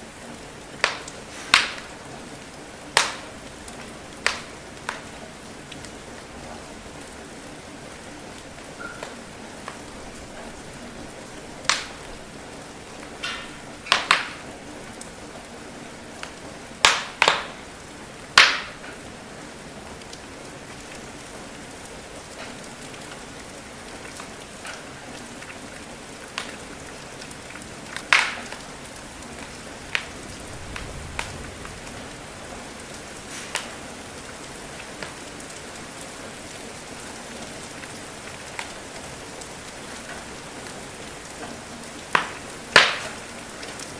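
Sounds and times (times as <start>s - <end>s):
steady rain: 0.0s - 43.9s
wood fire crackling: 0.0s - 43.9s.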